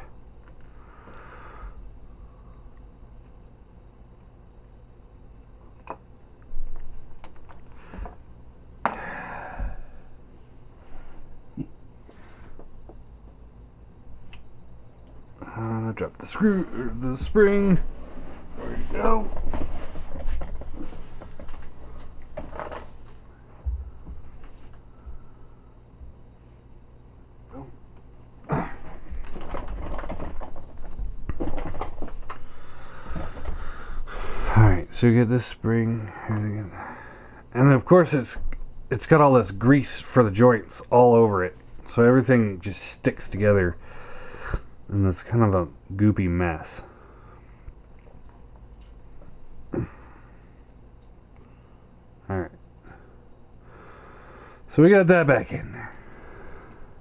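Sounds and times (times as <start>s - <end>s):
scraping rustle: 16.8s - 23.2s.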